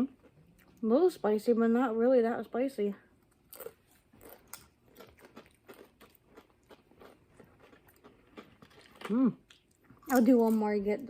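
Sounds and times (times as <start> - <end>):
tortilla chips being chewed: 3.3 - 10.7.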